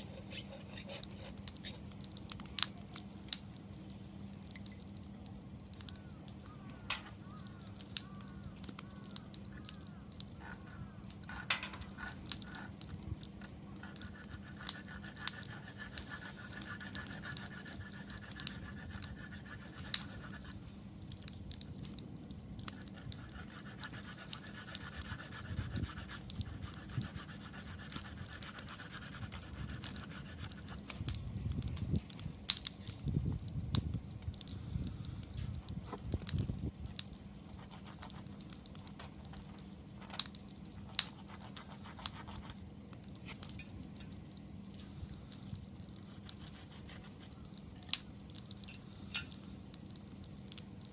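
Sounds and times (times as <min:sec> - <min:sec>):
thin hiss: 0:00.0 - 0:12.8
campfire crackles and pops: 0:00.0 - 0:50.9
low rush of flame: 0:25.4 - 0:50.9.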